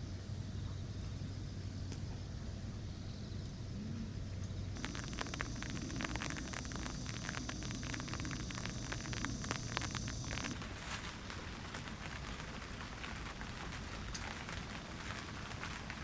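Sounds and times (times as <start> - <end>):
low hum with hiss: 0.0 - 16.0
steady high whine: 4.8 - 10.6
rain pattering on a tent: 4.8 - 16.0.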